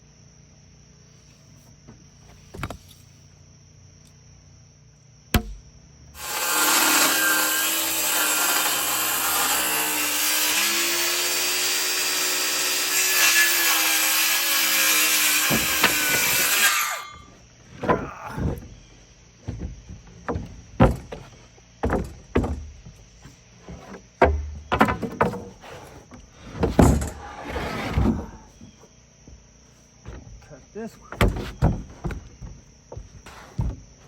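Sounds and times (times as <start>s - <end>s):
crickets chirping: 0.0s - 11.7s, 14.0s - 34.0s
wood knocks: 5.3s - 5.7s, 15.4s - 16.7s, 17.3s - 27.2s, 30.0s - 34.0s
circular saw cutting wood: 6.2s - 17.3s.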